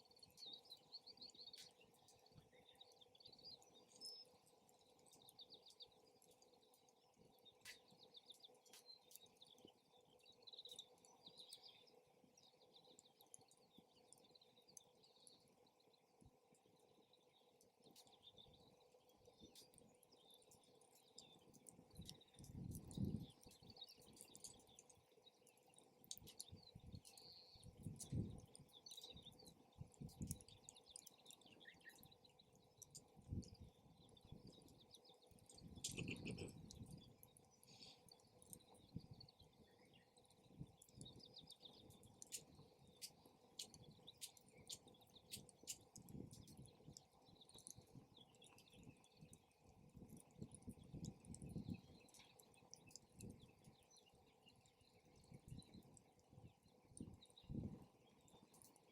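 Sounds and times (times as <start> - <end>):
birds chirping faintly: 0.0 - 58.9
campfire crackling and popping: 0.1 - 58.9
wind rumbling on microphone: 21.2 - 24.9, 26.1 - 30.8, 32.8 - 37.2, 38.6 - 42.7, 43.6 - 53.8, 55.0 - 58.3.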